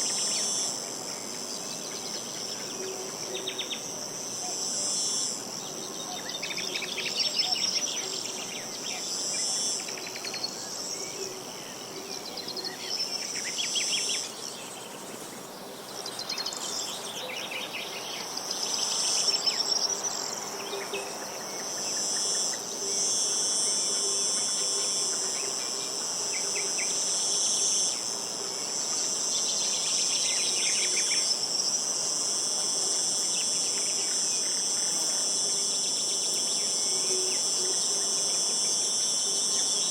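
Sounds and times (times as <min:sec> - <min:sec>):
small birds singing: 0:00.0 - 0:22.8, 0:25.1 - 0:32.0
insects trilling: 0:00.0 - 0:39.9.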